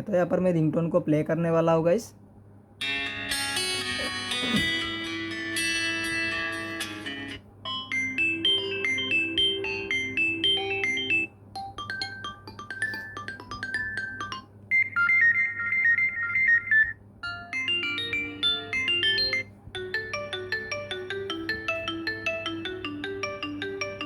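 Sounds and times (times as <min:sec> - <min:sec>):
phone ringtone melodies: 0:06.5 - 0:24.0.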